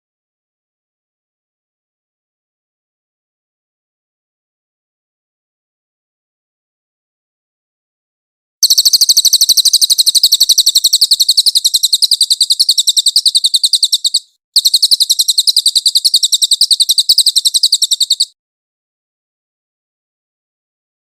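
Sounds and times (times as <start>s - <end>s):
songbird singing high notes: 8.6s - 18.4s.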